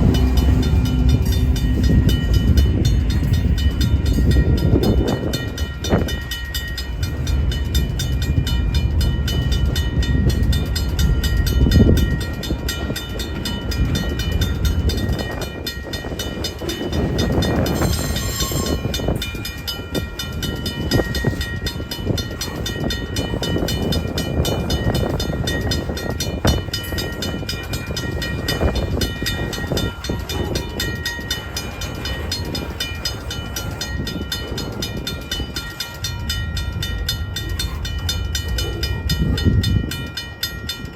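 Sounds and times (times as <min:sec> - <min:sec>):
train rumbling on tracks: 0:00.0 - 0:40.9.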